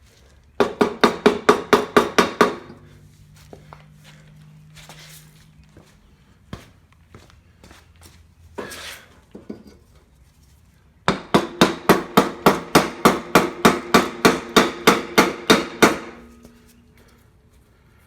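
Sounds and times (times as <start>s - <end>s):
hammer striking metal: 11.1s - 16.2s.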